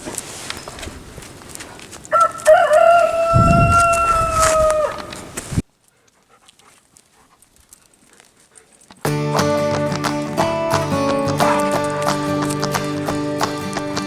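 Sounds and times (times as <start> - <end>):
dog howling: 2.2 - 5.2.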